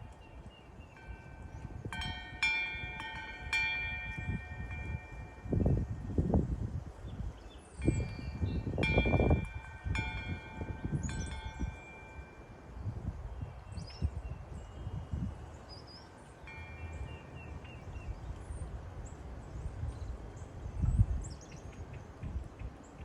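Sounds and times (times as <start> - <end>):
wind chime ringing: 0.0 - 18.3.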